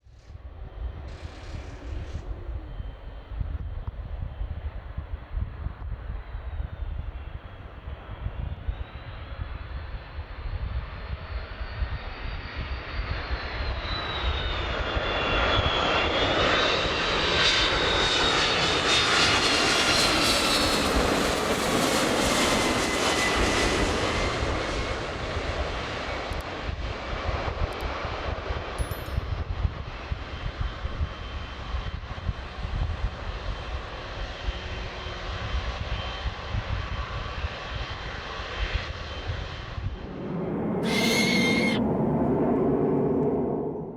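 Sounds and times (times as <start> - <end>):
jet airliner passing: 0.4 - 28.8, 29.8 - 43.9.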